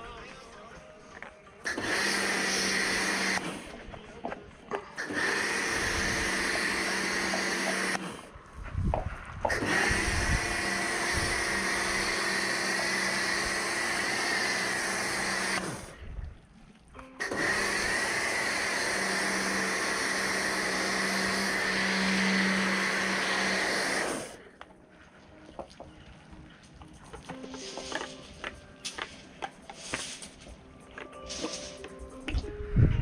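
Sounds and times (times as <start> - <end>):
pressure washer spraying: 1.7 - 3.8, 5.0 - 8.3, 9.5 - 16.0, 17.2 - 24.5, 27.2 - 30.5, 31.2 - 31.9.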